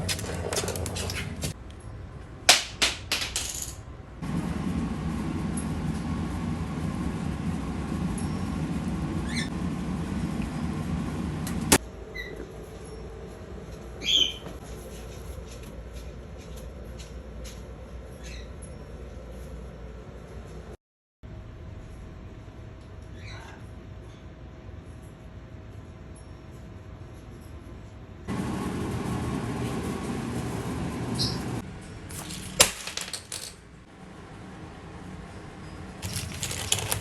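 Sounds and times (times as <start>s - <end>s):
steady low rumble: 4.2s - 11.8s
sharp clicks and clatters: 36.0s - 37.0s.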